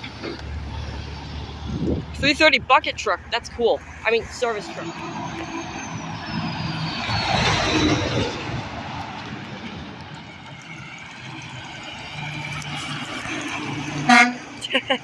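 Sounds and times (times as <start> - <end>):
traffic engine and tyre noise: 0.0 - 15.0
vehicle passing with whine: 3.3 - 14.6.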